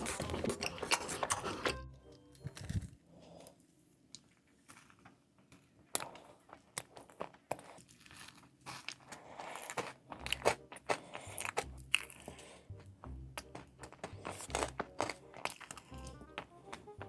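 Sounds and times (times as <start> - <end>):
dull chewing: 0.0 - 1.8, 4.7 - 17.0
crunchy chocolate crunches: 4.6 - 16.9.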